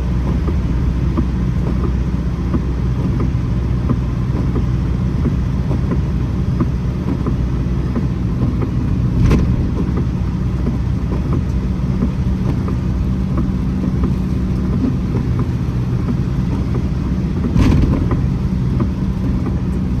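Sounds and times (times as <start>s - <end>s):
rain drops ticking: 0.0s - 20.0s
vehicle engine humming: 0.0s - 20.0s
loud thumps: 8.3s - 20.0s.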